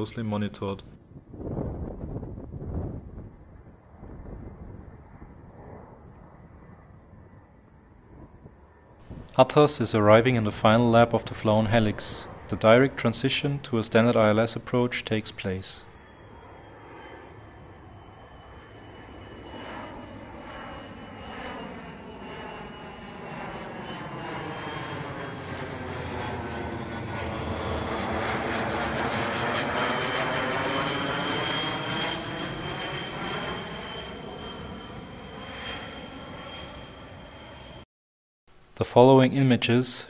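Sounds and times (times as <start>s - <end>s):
jet flying past: 1.2s - 37.8s
high engine whine: 7.5s - 37.8s.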